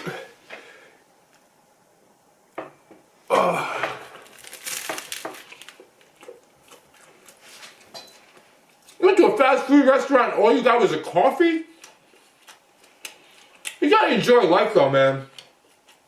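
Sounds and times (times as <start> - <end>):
crunching crinkling noise: 4.0 - 9.0
chewing: 5.5 - 7.4.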